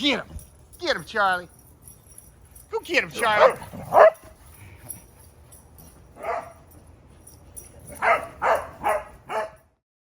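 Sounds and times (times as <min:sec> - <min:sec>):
dog play barks: 0:03.1 - 0:04.4, 0:06.2 - 0:06.7, 0:07.8 - 0:09.7.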